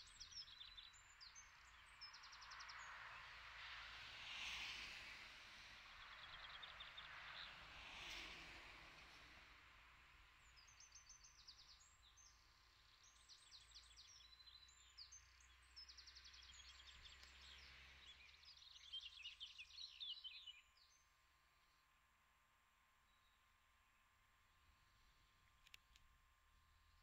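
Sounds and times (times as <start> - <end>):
songbird chirping and trilling: 13.0 - 21.0.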